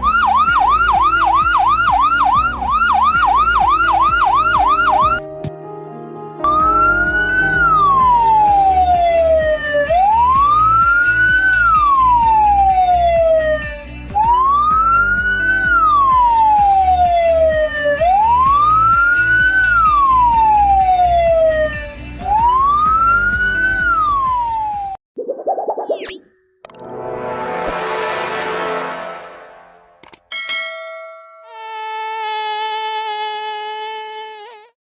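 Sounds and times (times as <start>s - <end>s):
ambulance siren wailing: 0.0s - 5.2s, 6.5s - 24.7s.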